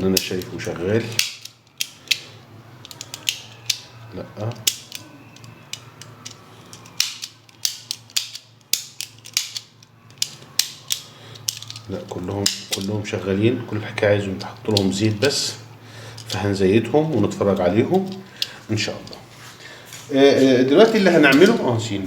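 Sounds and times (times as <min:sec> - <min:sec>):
fan mechanism clicking: 0:00.0 - 0:13.1, 0:16.1 - 0:19.2.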